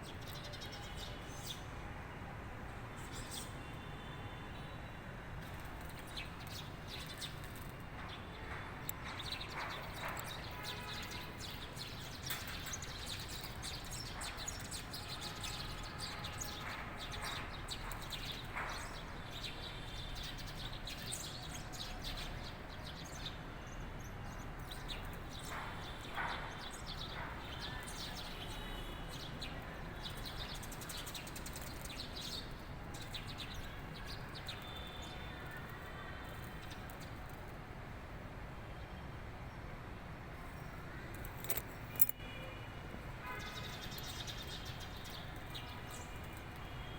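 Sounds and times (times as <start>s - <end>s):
birds chirping and singing: 24.7s - 35.8s.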